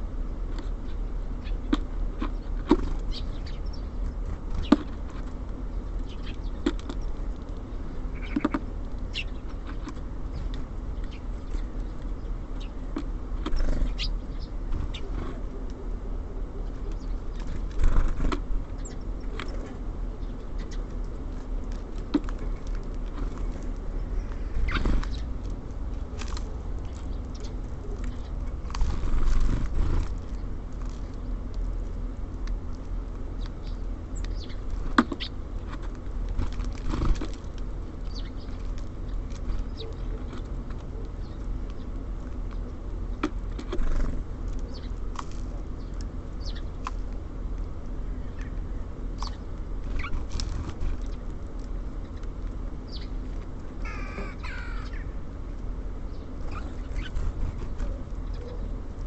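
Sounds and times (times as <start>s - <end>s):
low city rumble: 0.0s - 59.0s
birds tapping and clicking: 0.3s - 15.8s, 16.6s - 59.0s
high bird calls: 23.4s - 25.4s, 49.2s - 50.3s, 53.8s - 55.2s, 56.1s - 58.8s.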